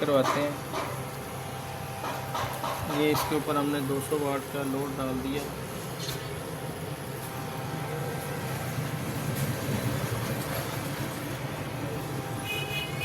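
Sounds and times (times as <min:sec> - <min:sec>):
inverter low hum: 0:03.4 - 0:13.0.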